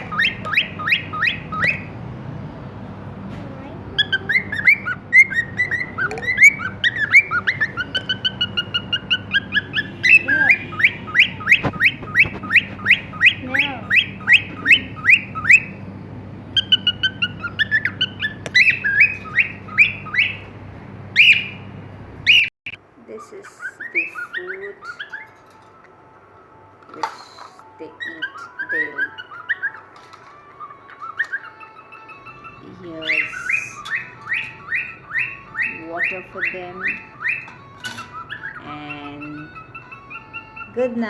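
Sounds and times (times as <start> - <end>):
cockatiel chirping: 0.0 - 1.9, 3.6 - 15.8, 16.5 - 20.5, 21.1 - 22.5, 23.6 - 25.4, 27.9 - 41.0.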